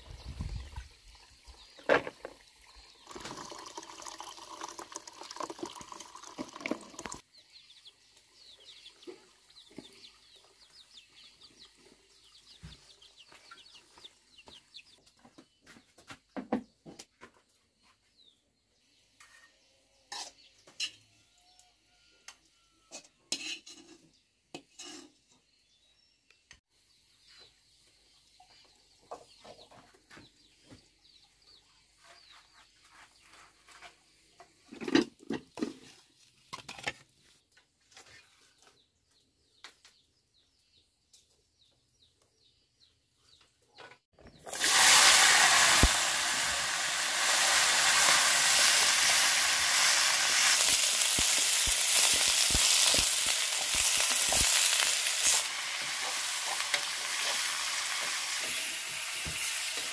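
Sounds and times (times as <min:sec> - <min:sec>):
food sizzling in hot oil: 0:44.4 - 0:59.9.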